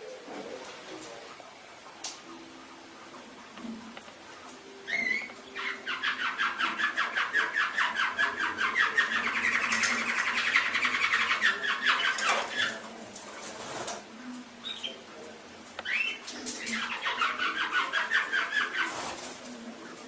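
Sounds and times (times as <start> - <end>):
canary singing trills: 4.2 - 12.8, 14.6 - 15.1, 15.8 - 19.2.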